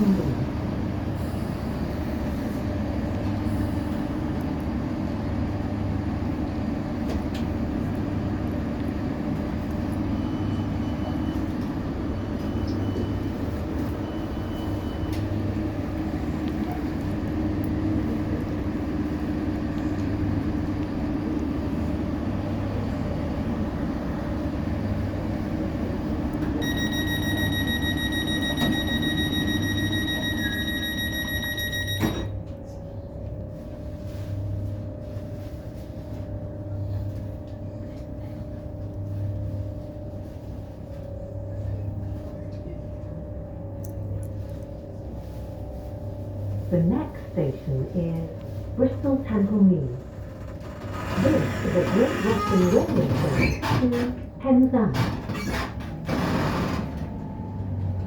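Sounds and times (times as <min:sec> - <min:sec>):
train rumble and hum: 0:00.0 - 0:58.0
faint short beeps: 0:26.6 - 0:32.3.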